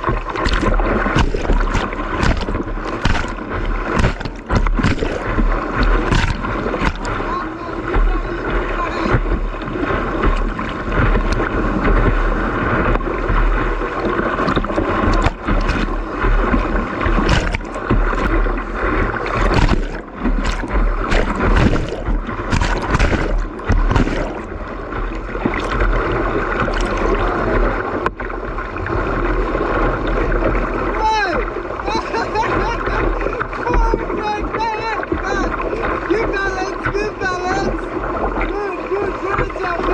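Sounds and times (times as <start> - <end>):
whitewater rapids rushing: 0.0 - 27.9.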